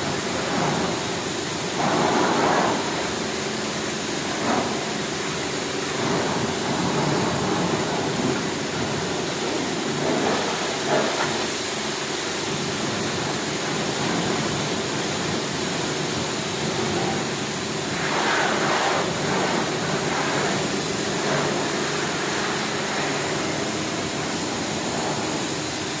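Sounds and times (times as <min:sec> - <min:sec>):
pressure washer pump humming: 0:00.0 - 0:26.0
water jet hissing: 0:00.0 - 0:26.0.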